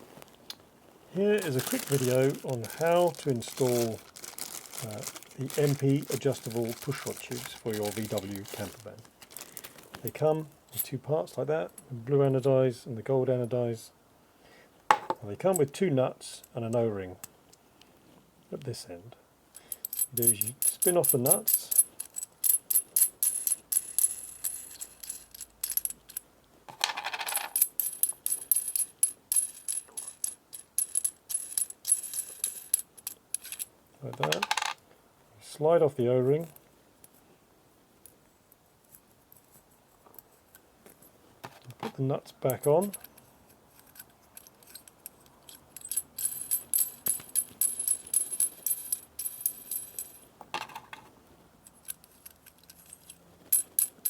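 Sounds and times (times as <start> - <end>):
light metallic clicks and clinks: 19.5 - 26.3, 41.8 - 50.3, 51.6 - 54.0.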